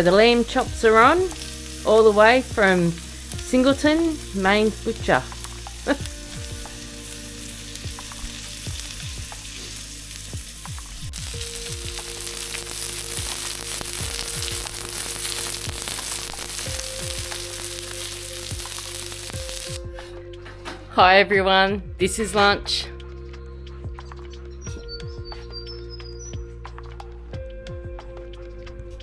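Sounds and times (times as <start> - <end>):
meat sizzling in a pan: 0.0 - 19.9.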